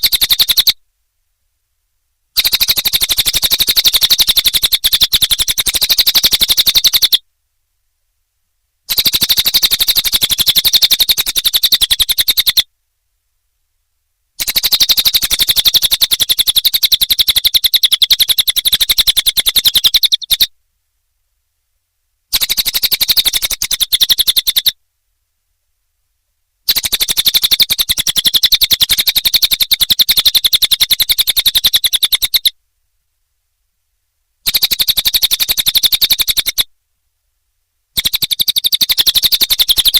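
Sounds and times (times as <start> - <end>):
bird chattering trill: 0.0 - 0.8, 2.4 - 7.2, 8.9 - 12.6, 14.4 - 20.5, 22.3 - 24.8, 26.7 - 32.5, 34.4 - 36.7, 38.0 - 39.9.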